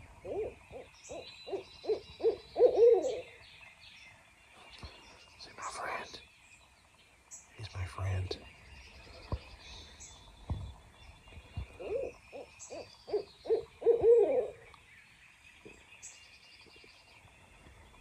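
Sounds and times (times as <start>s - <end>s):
owl hooting: 0.2s - 3.3s, 11.8s - 14.6s.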